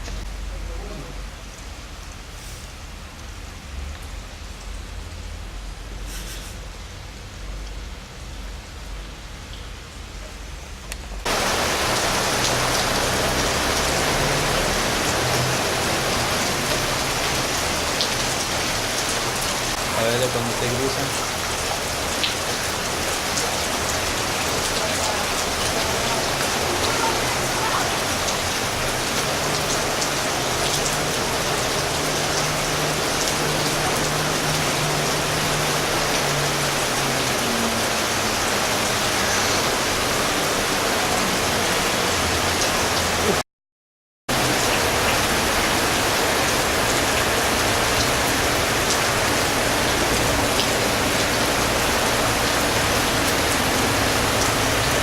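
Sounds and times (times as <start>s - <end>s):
rushing water hiss: 0.0s - 9.9s, 11.2s - 43.4s.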